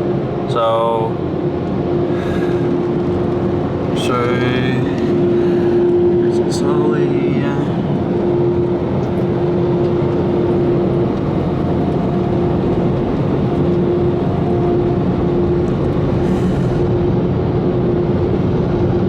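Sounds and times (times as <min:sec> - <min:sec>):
car wash air dryer blowers: 0:11.2 - 0:18.3.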